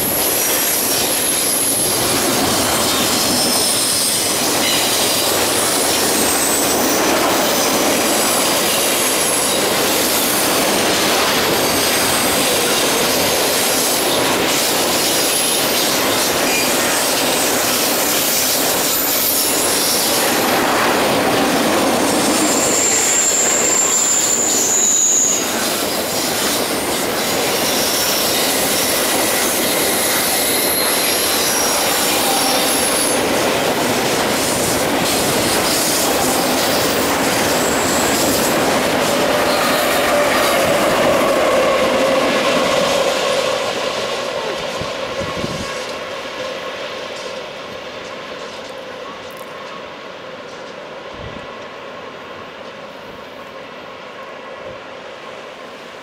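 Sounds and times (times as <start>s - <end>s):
wheels squealing: 0.0s - 43.8s
train wheels rumbling on rail: 0.0s - 56.0s.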